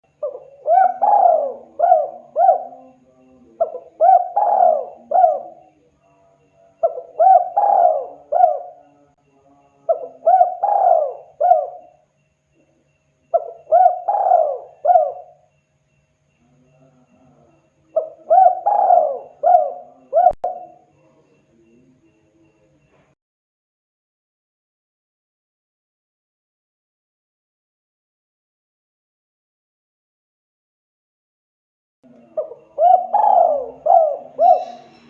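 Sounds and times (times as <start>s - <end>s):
faint low hum: 0.0s - 23.2s, 32.0s - 35.0s
dove cooing: 0.1s - 5.8s, 6.8s - 9.1s, 9.8s - 12.0s, 13.3s - 15.5s, 16.8s - 21.7s, 32.1s - 35.0s.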